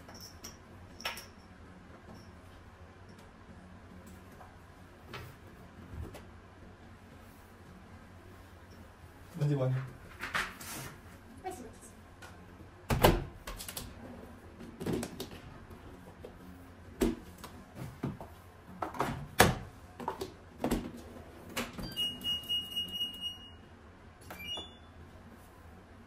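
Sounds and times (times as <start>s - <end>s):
appliance beep tone: 21.8s - 23.7s, 24.3s - 25.0s.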